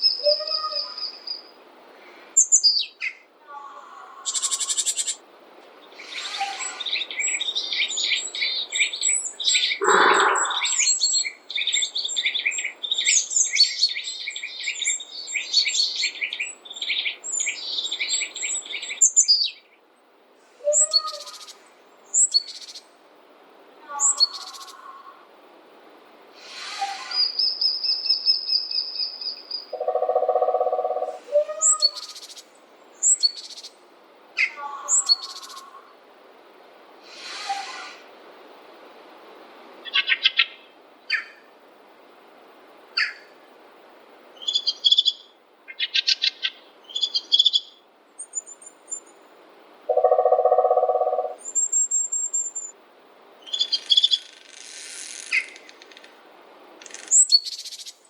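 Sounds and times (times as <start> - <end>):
forest birds calling and singing: 0.0 - 19.9, 20.5 - 23.0, 23.8 - 25.2, 26.4 - 33.8, 34.4 - 35.9, 39.8 - 41.5, 44.4 - 49.3, 49.9 - 52.8, 53.4 - 56.1, 56.8 - 58.0.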